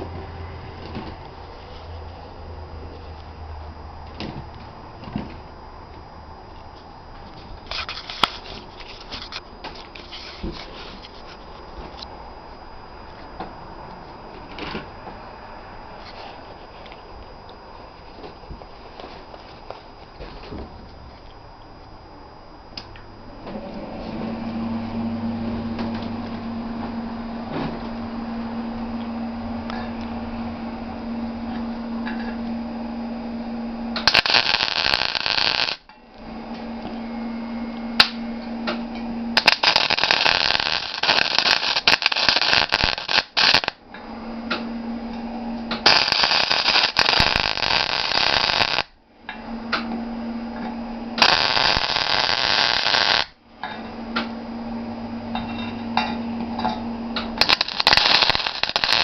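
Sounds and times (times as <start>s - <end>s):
steady hum: 0.0s - 59.0s
welding arc crackling: 33.9s - 35.9s, 38.0s - 43.8s, 45.6s - 49.0s, 50.6s - 53.4s, 56.0s - 59.0s.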